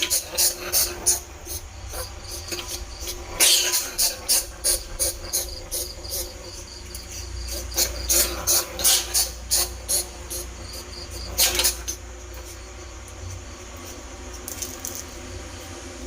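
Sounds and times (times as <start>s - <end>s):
rat squeaking: 0.0s - 12.8s.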